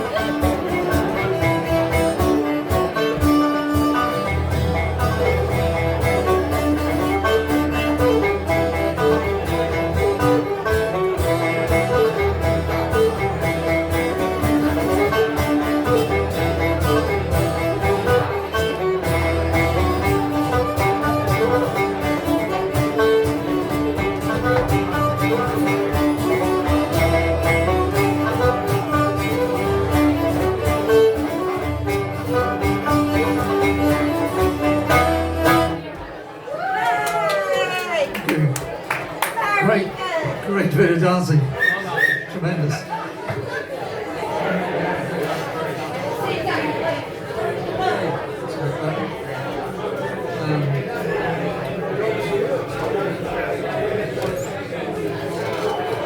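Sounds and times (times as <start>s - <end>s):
strummed acoustic guitar: 0.0s - 36.2s
plucked banjo: 0.0s - 36.4s
bass line: 3.3s - 35.8s.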